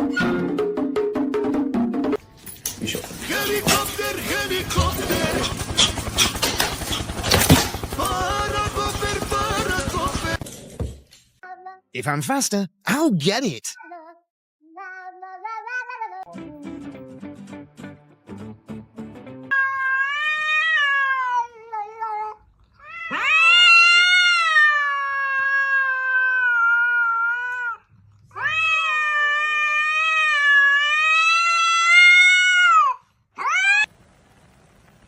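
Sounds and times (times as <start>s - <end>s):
cat yowling: 19.5s - 33.9s.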